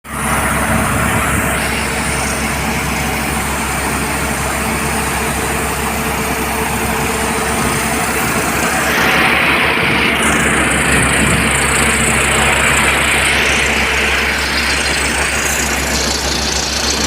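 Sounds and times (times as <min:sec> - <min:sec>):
pneumatic rock drill hammering: 0:00.2 - 0:17.0.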